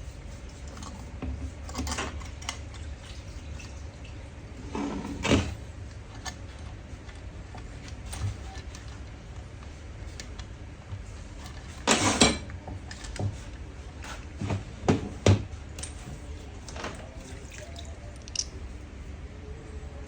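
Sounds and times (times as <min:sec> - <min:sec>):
small metal parts clinking: 0:18.2 - 0:18.5.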